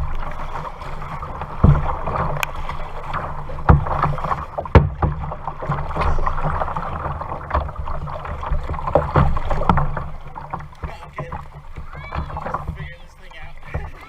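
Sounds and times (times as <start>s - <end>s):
water splashing around paddle: 0.0s - 14.0s
sharp knocks: 1.5s - 6.7s.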